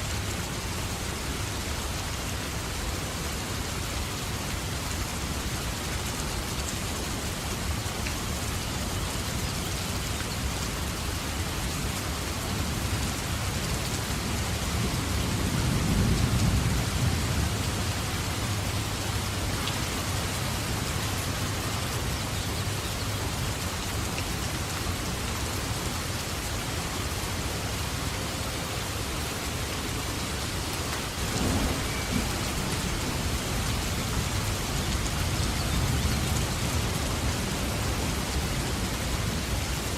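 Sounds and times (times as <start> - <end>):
heavy rain falling: 0.0 - 39.9
thunder rumbling: 31.2 - 39.4.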